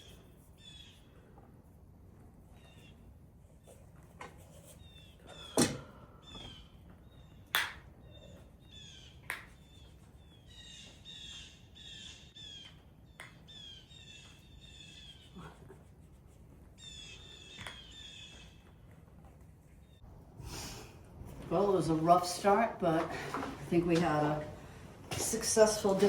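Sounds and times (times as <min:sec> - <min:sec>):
small birds chirping: 0:00.0 - 0:01.3, 0:02.5 - 0:03.1, 0:04.5 - 0:15.6, 0:16.8 - 0:18.9.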